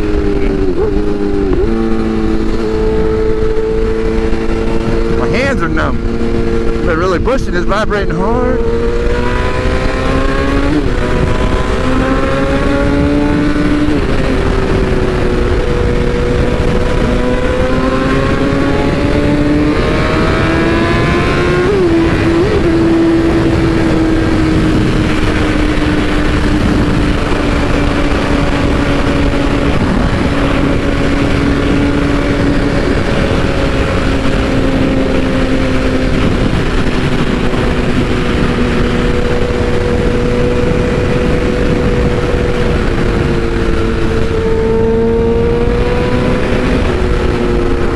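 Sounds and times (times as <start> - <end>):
motorcycle engine at high speed: 0.0 - 47.9
wind rush on microphone: 0.0 - 47.9.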